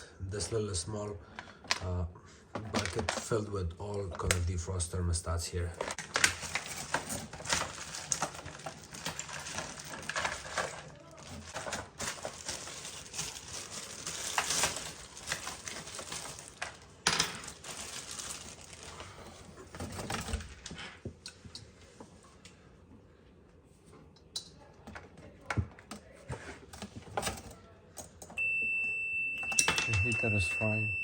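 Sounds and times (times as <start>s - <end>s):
small tools clicking and rattling: 5.8s - 18.4s.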